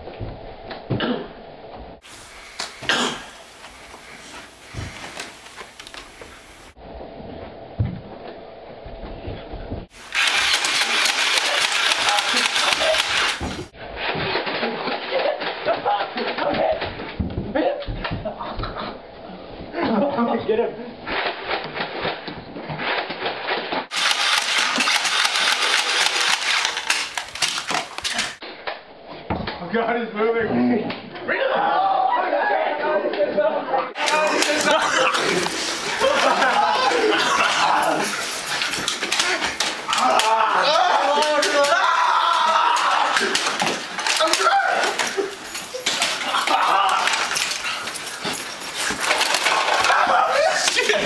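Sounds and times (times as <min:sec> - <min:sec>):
toy blasters firing rapidly: 0:10.0 - 0:13.7, 0:23.9 - 0:28.4, 0:34.0 - 0:36.5
people yelping and shouting: 0:10.2 - 0:13.5, 0:31.2 - 0:51.0.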